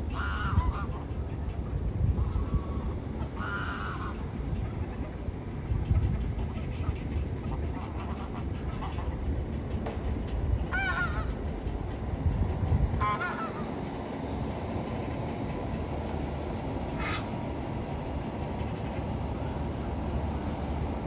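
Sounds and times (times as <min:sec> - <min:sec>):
waterbird honking: 0:13.0 - 0:13.7.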